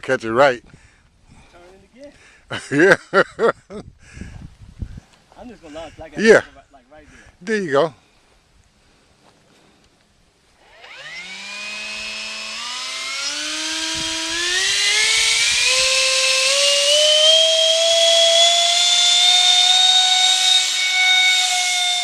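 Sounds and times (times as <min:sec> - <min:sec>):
model jet fan motor whine: 0:10.6 - 0:22.0.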